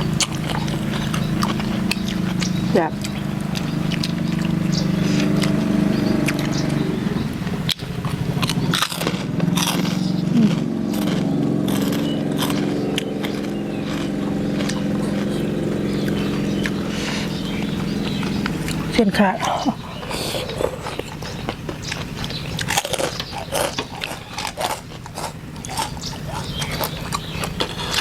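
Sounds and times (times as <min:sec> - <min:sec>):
person chewing crunchy food: 0:00.0 - 0:28.0
steady low hum: 0:00.0 - 0:28.0.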